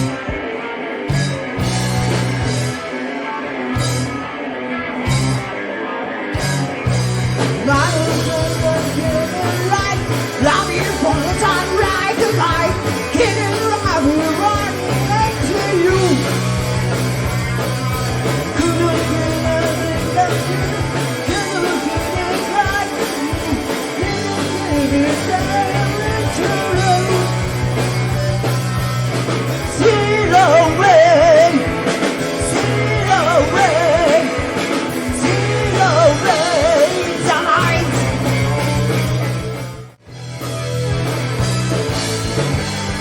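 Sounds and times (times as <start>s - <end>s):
live hard rock band playing: 0.0s - 43.0s
vibrato vocals singing: 7.6s - 16.5s, 18.3s - 27.9s, 29.6s - 38.9s.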